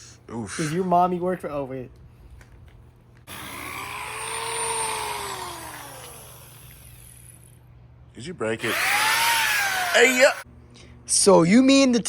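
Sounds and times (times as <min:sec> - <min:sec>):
motor whine: 0:03.3 - 0:07.6, 0:08.6 - 0:10.5.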